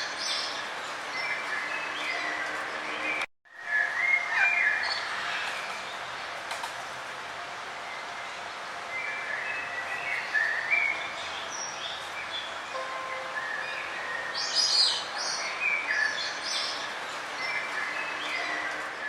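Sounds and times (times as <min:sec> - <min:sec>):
birds chirping: 0:08.9 - 0:19.0.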